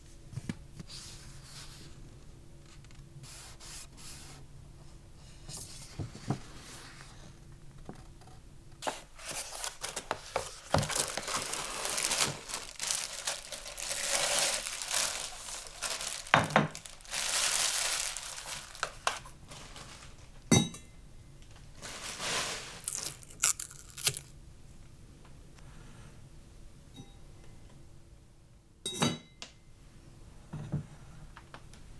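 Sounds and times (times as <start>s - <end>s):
packaging crinkling and tearing: 8.8s - 20.4s, 21.6s - 24.3s.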